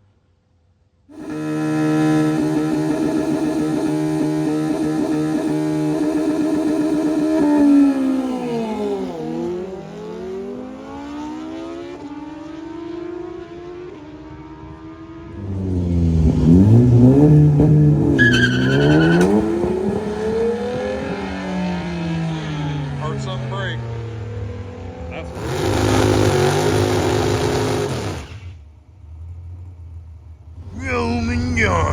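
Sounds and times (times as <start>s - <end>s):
drag car engines revving: 1.1s - 14.2s, 14.8s - 31.9s
car engine revving through gears: 1.1s - 28.6s
brief high squeal: 18.2s - 19.4s.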